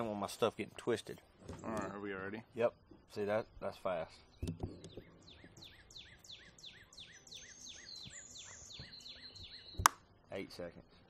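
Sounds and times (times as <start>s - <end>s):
bird chirping: 1.0s - 11.0s.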